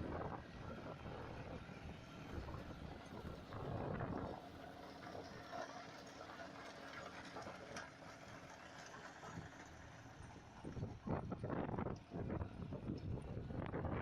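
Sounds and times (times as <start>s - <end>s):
tractor diesel engine running: 0.0s - 13.8s
rotavator churning soil: 2.2s - 11.5s.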